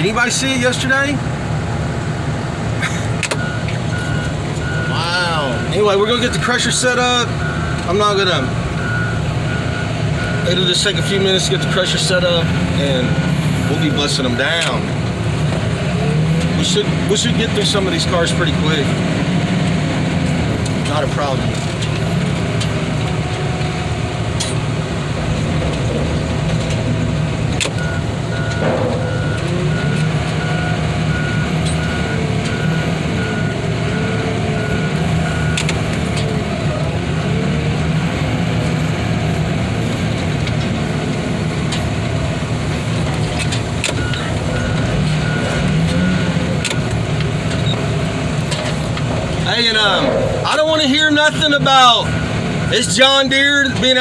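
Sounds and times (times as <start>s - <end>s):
heavy diesel engine running: 0.0s - 54.0s
backup alarm beeping: 3.4s - 6.5s, 27.8s - 35.6s, 49.5s - 53.2s
wavering whine: 49.6s - 52.7s.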